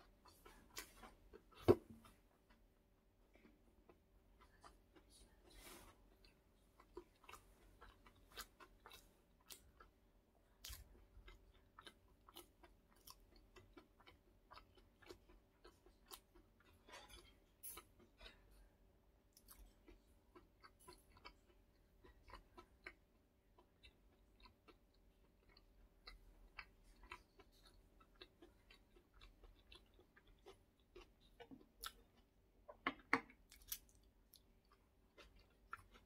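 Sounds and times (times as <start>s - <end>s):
soft wet chewing clicks: 0.0s - 36.0s.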